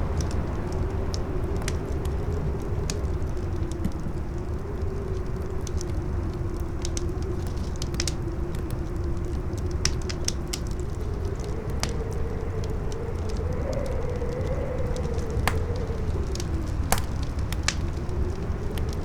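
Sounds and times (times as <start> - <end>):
howling wind: 0.0 - 19.0
campfire crackling and popping: 0.2 - 19.0
strong wind rumble: 10.8 - 19.0.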